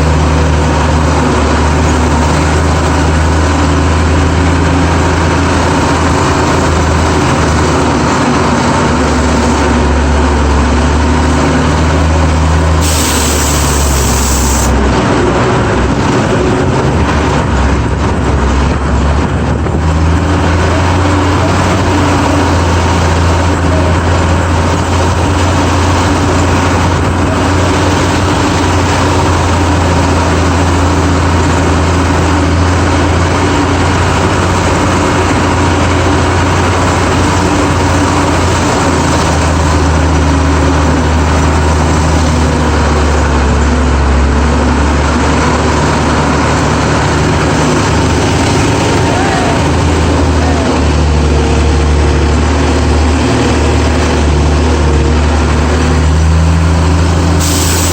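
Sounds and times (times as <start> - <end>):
truck engine droning: 0.0 - 57.9
short hiss: 12.8 - 14.8, 57.4 - 57.9.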